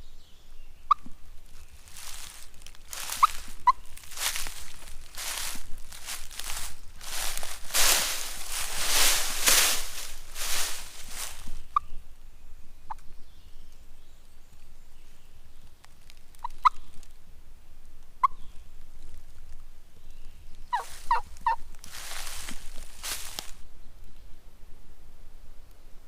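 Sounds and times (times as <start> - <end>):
rustling in leaves: 1.2 - 12.0, 15.2 - 17.3, 18.4 - 23.7
wild turkey yelps: 2.9 - 3.9, 20.7 - 21.7.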